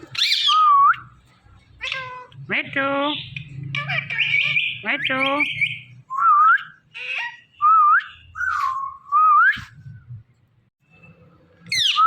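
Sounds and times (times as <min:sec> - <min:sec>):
parrot whistling: 0:03.9 - 0:09.8.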